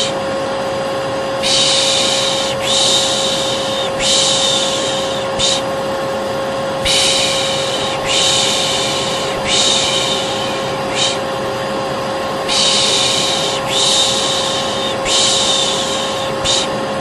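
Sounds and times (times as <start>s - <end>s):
hair dryer whine: 0.0s - 17.0s
person shushing: 1.4s - 5.8s, 6.8s - 11.3s, 12.5s - 16.8s.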